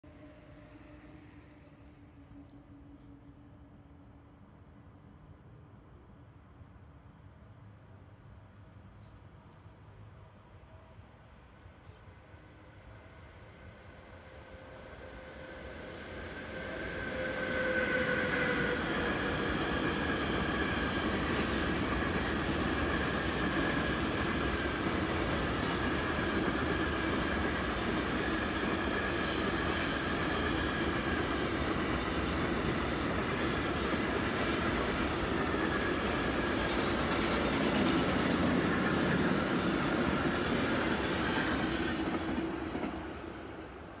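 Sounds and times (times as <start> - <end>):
freight train passing: 0.0 - 44.0.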